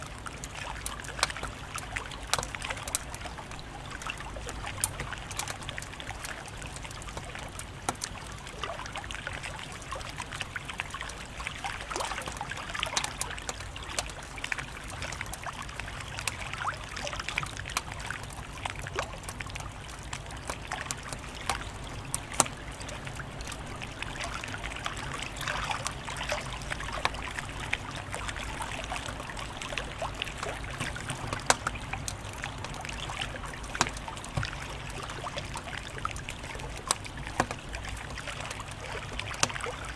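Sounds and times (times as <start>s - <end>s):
wood fire crackling: 0.0s - 39.6s.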